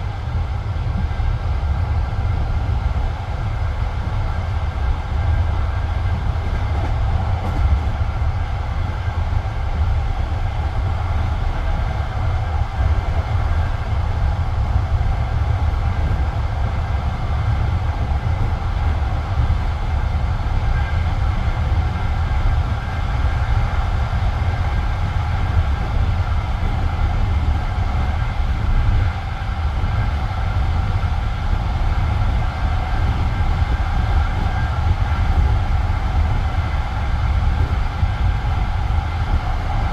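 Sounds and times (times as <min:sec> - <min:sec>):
train wheels rumbling on track: 0:00.0 - 0:39.9.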